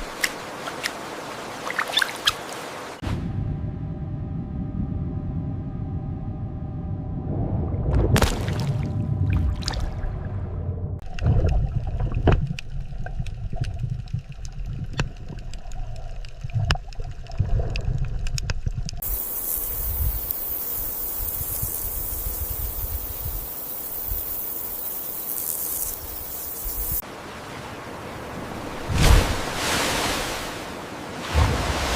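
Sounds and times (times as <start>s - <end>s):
low water rumbling: 3.0s - 19.0s.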